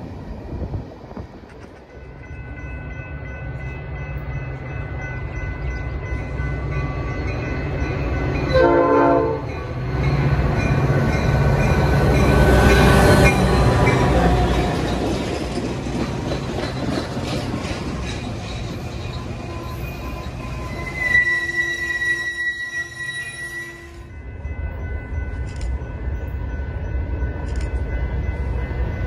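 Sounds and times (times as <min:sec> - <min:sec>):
diesel train rumbling: 0:00.0 - 0:29.0
train horn blast: 0:08.5 - 0:09.6, 0:20.8 - 0:24.2.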